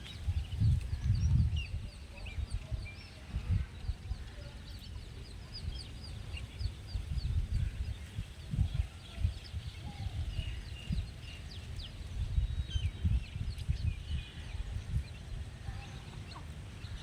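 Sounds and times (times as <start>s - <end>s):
chicks peeping: 0.0s - 17.0s
low wind rumble: 0.0s - 17.0s.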